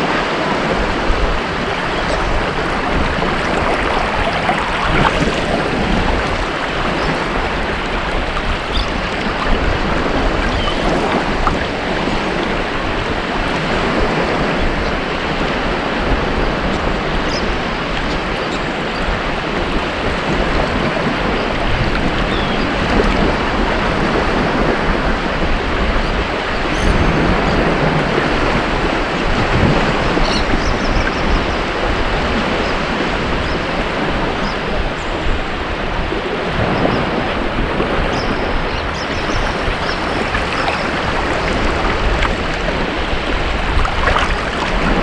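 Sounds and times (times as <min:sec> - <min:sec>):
ocean waves breaking: 0:00.7 - 0:14.0, 0:37.4 - 0:45.0
faint high splashes: 0:01.4 - 0:13.3, 0:37.8 - 0:45.0.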